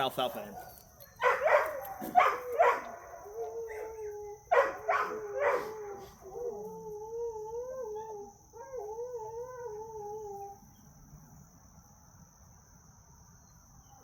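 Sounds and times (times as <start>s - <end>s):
dog barking: 0.4s - 6.3s
dog whining or howling: 1.0s - 10.8s.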